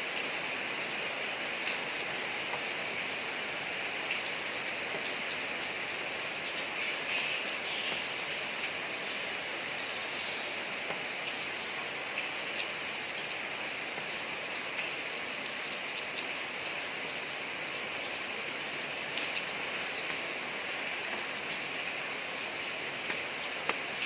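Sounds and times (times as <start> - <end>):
rain falling on a street: 0.0 - 24.0
sharp raindrop ticks: 4.0 - 8.9, 10.7 - 16.5, 18.9 - 24.0.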